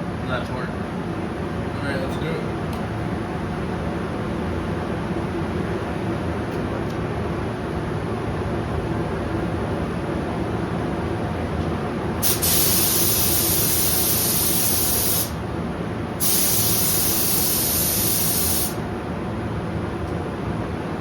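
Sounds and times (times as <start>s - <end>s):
steady low hum: 0.0s - 21.0s
paint spray gun spraying: 12.2s - 15.4s, 16.2s - 18.8s.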